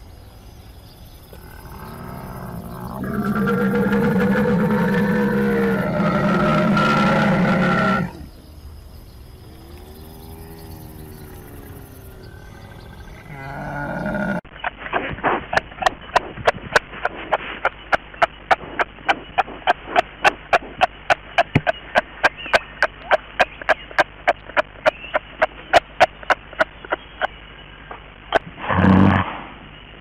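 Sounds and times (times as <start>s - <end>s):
camel call: 1.4s - 8.3s.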